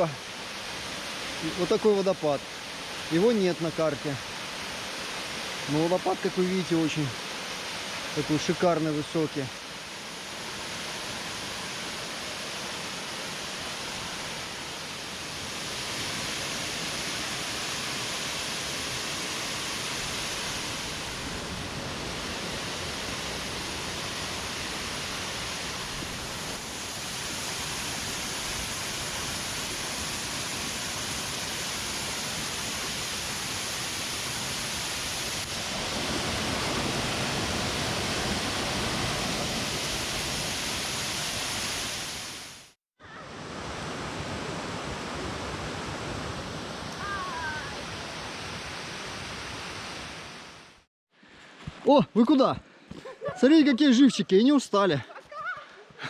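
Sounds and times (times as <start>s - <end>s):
waterfall rushing: 0.0s - 50.8s.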